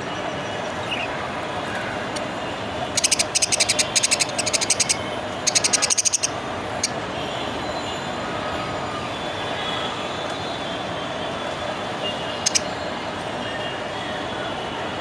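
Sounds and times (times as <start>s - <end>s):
budgerigar chirping: 2.9s - 7.0s, 12.4s - 12.7s.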